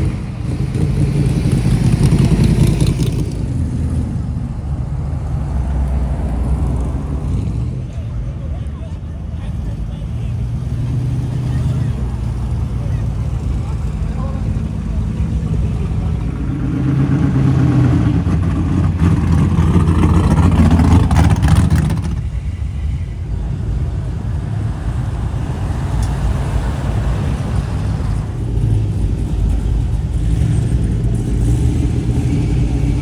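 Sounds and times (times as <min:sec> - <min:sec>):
second car engine: 0:00.0 - 0:33.0
car engine driving past: 0:09.5 - 0:33.0.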